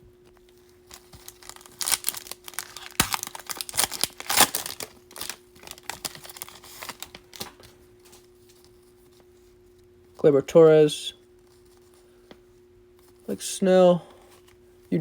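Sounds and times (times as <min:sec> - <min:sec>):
foil wrapper tearing and crinkling: 0:00.8 - 0:07.7.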